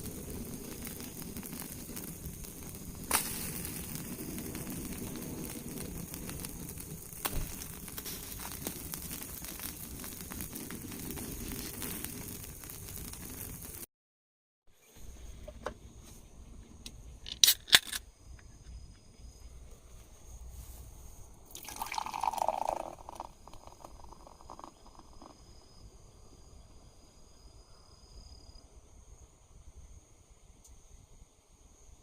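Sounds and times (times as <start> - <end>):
liquid dripping: 21.5 - 25.3
liquid pouring into a cup: 21.5 - 25.4.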